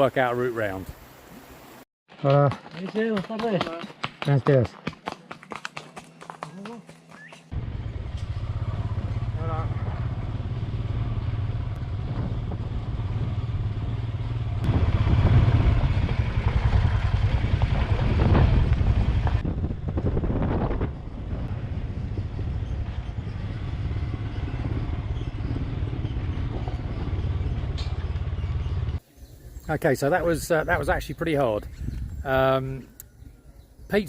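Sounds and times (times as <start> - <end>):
motorcycle engine running: 7.5 - 29.0.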